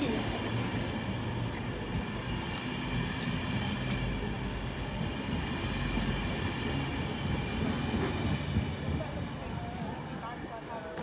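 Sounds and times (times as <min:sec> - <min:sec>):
train humming: 0:00.0 - 0:11.0.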